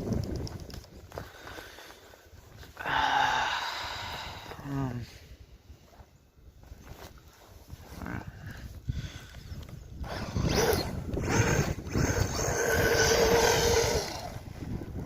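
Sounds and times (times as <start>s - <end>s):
electric motor whining: 10.0s - 14.6s.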